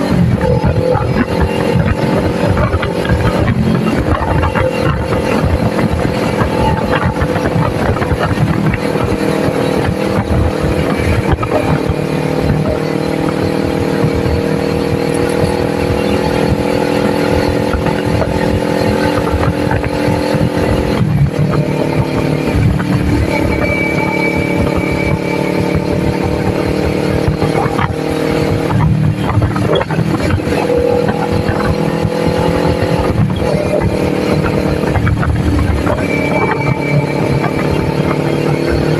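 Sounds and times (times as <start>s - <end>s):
gear shift: 0.0s - 38.9s
motorcycle engine cruising: 0.0s - 38.9s.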